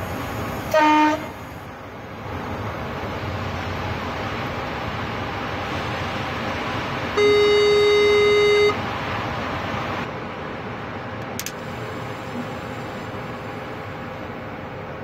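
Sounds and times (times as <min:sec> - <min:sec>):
train running noise: 0:00.0 - 0:15.0
train horn tone: 0:00.7 - 0:01.4.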